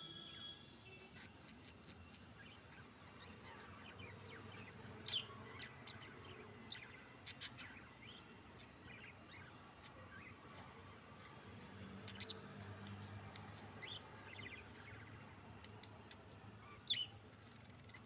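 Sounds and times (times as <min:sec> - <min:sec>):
budgerigars chirping: 0:01.2 - 0:10.8, 0:12.0 - 0:15.9, 0:16.6 - 0:18.0.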